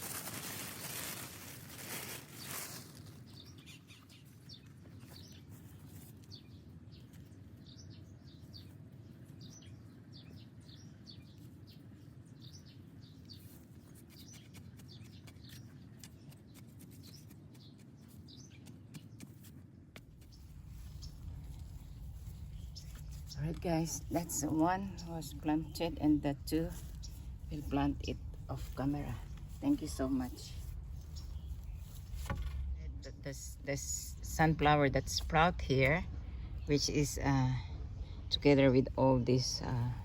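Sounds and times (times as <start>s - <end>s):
small birds chirping: 0.1s - 40.0s
low outdoor rumble: 19.6s - 40.0s.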